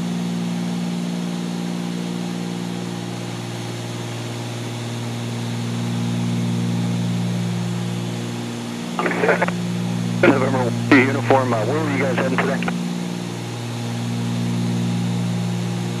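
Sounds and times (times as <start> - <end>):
aircraft cabin engine drone: 8.8 - 16.0.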